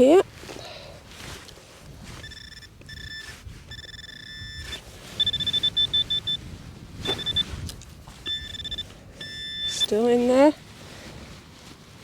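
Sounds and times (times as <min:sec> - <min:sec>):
metal detector pinpointer beeps: 0:02.2 - 0:06.4, 0:07.0 - 0:07.5, 0:08.2 - 0:10.0.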